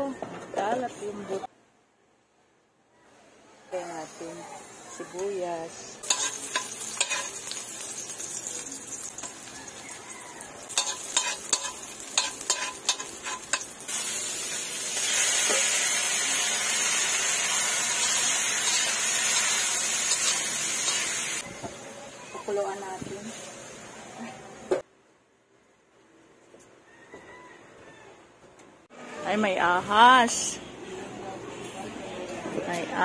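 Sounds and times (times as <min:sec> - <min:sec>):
onions frying in a wok: 0:03.8 - 0:24.7
loud steady sizzle: 0:03.9 - 0:24.0
metal spoon scraping a pan: 0:06.0 - 0:08.4, 0:10.6 - 0:14.1, 0:18.5 - 0:21.4.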